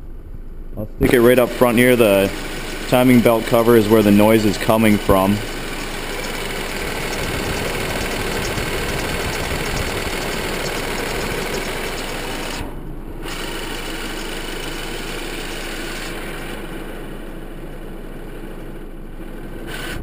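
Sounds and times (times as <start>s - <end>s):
car engine idling: 1.0s - 19.9s
engine squeaking noise: 1.1s - 16.0s.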